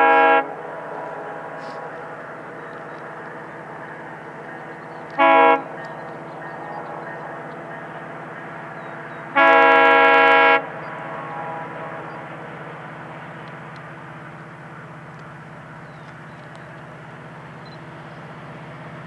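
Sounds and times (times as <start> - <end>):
locomotive air horn blasts: 0.0 - 2.2, 5.1 - 5.9, 9.2 - 12.7
diesel train rumble: 0.0 - 19.0.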